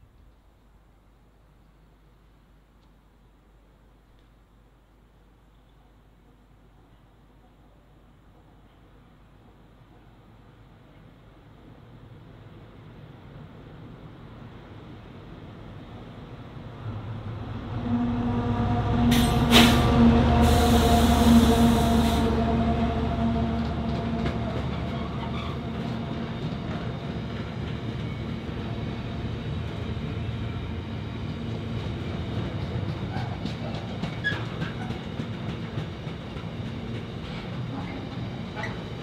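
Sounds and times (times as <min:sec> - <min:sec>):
locomotive passing with hum: 0:13.1 - 0:39.0
brief rushes of noise: 0:17.0 - 0:22.8.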